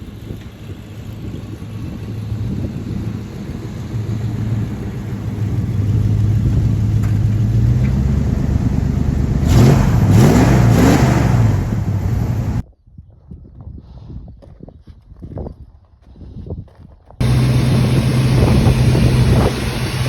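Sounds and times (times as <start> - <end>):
engine idling and revving: 0.0 - 12.6, 17.2 - 20.0.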